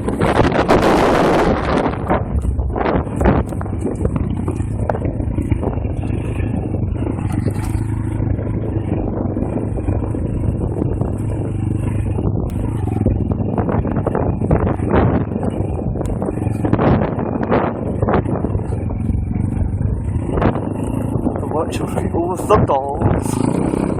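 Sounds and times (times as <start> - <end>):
motorbike engine running: 0.0 - 23.9.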